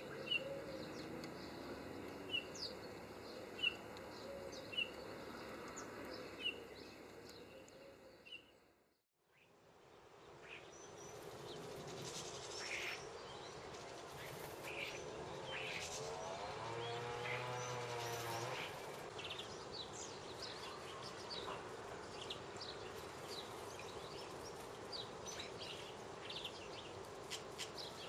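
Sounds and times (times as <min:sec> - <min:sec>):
bird chirps: 0:00.0 - 0:08.6
outdoor background noise: 0:00.0 - 0:28.0.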